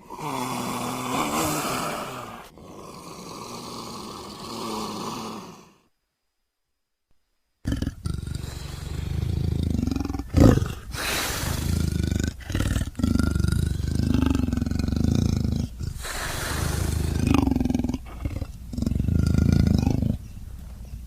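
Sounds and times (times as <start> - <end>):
leopard calling: 7.6 - 21.0.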